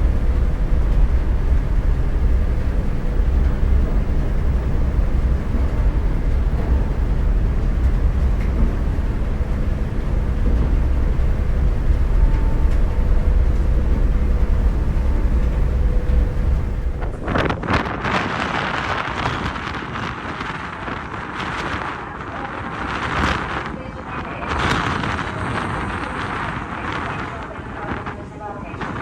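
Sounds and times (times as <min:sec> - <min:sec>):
faint motorcycle engine hum: 0:00.0 - 0:17.5
wind rush on microphone: 0:00.0 - 0:29.0.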